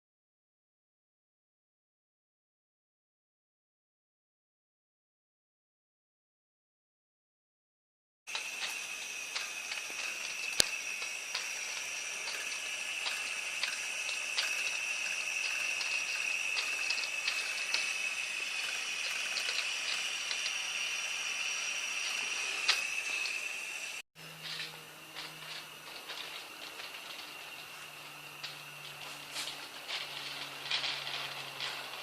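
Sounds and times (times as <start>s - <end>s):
small ticks and crackles: 8.3s - 21.0s
boiler hissing: 8.3s - 32.0s.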